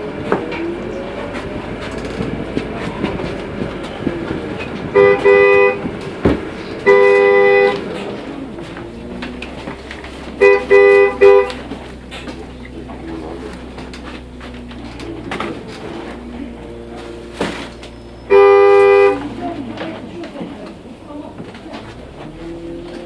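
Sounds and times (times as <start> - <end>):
rumble of travel noise: 0.0 - 23.0
two-note vehicle horn blasts: 4.9 - 8.0, 10.3 - 11.8, 16.7 - 19.4.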